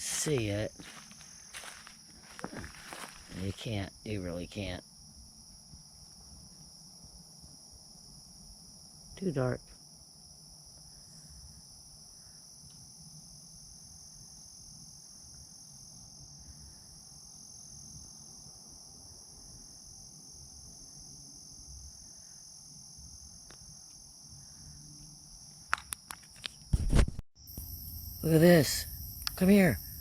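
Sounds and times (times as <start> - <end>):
insect chorus trilling: 0.0 - 26.6, 27.4 - 30.0.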